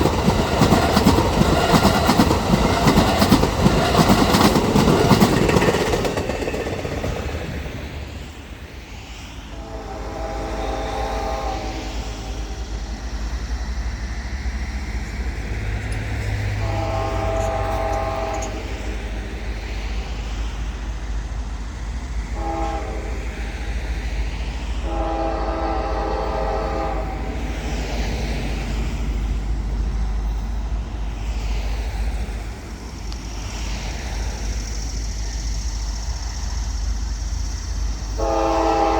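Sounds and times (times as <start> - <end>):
wheels on rails: 0.0 - 9.3, 11.8 - 21.1
train rumbling past: 0.0 - 38.9
locomotive air horn: 9.5 - 12.6, 16.4 - 18.9, 22.3 - 23.4, 24.8 - 27.4, 38.2 - 38.9.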